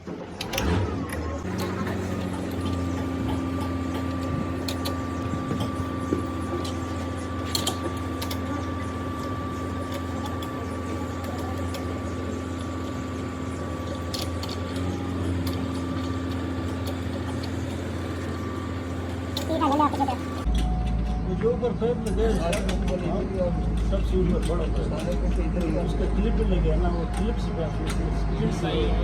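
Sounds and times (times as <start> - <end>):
machine hum: 0.1 - 29.0
high machine whine: 0.3 - 29.0.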